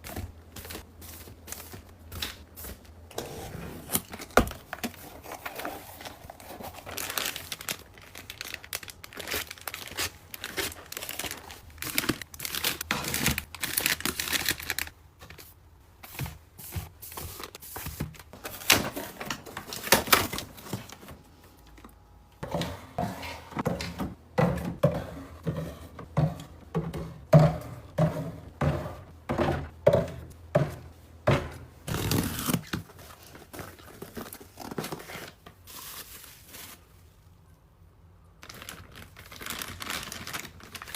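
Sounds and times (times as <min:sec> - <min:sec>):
packaging crinkling and tearing: 0:03.9 - 0:15.5, 0:31.9 - 0:36.9, 0:38.4 - 0:40.9.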